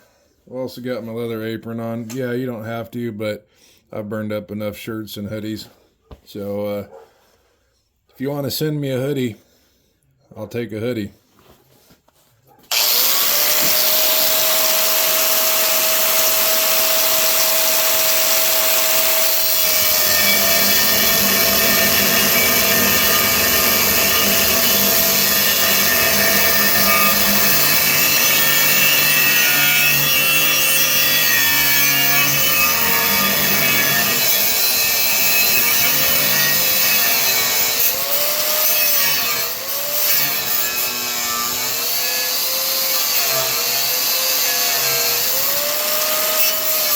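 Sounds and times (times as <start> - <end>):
power tool cutting steel: 12.7 - 46.9.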